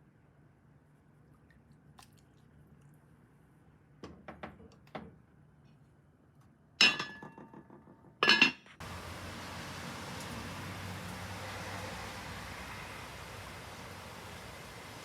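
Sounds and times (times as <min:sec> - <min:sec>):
dishes clinking: 0:06.8 - 0:07.6, 0:08.2 - 0:08.7
steady hiss: 0:08.8 - 0:15.0.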